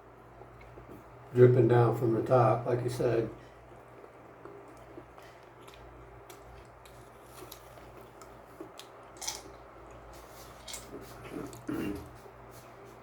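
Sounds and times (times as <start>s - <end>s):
chewing: 3.7s - 12.3s.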